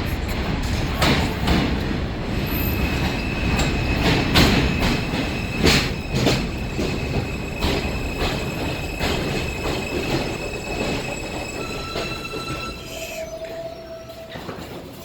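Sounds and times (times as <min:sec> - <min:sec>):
subway train running: 0:00.0 - 0:15.0
wheels clacking over rail joints: 0:00.2 - 0:15.0
high-pitched wheel squeal: 0:03.0 - 0:15.0.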